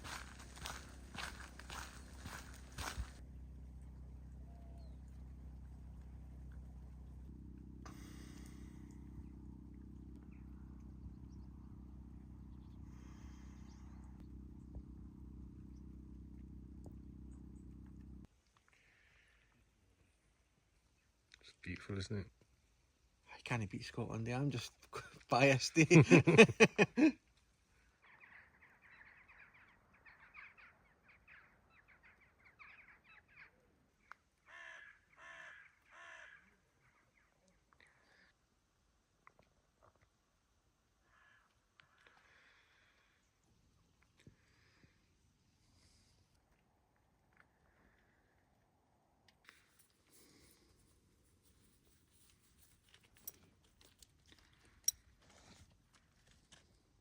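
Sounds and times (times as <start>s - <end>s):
low mechanical hum: 0.0s - 18.3s
crow cawing: 34.4s - 36.6s, 41.0s - 43.0s
crow chattering calls: 34.5s - 36.5s.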